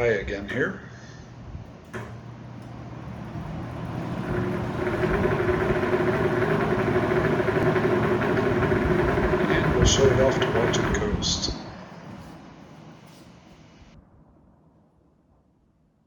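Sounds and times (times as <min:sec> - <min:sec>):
box fan air rush and motor hum: 0:00.0 - 0:14.0.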